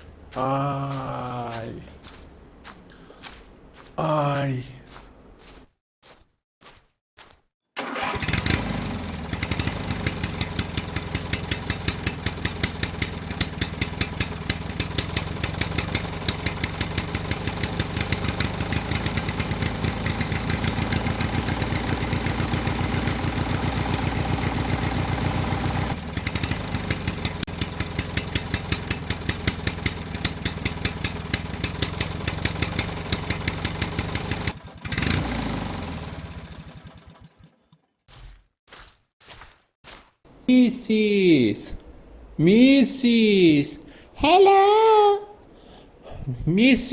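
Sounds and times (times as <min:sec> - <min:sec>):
small engine running: 0:07.8 - 0:37.8.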